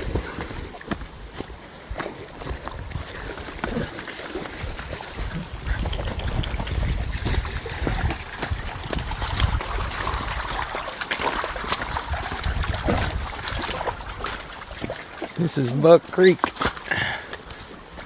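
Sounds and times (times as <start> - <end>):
wind rumble on microphone: 0.0 - 3.9, 4.5 - 15.0
creek water running: 0.0 - 18.0
footsteps crunching: 0.0 - 18.0.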